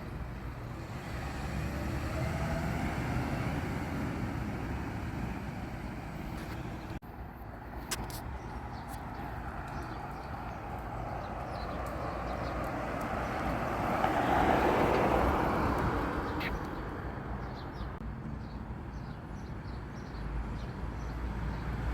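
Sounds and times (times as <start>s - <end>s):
vehicle passing by: 0.5s - 7.0s, 9.1s - 18.0s
small birds chirping: 7.7s - 14.1s, 16.2s - 21.8s.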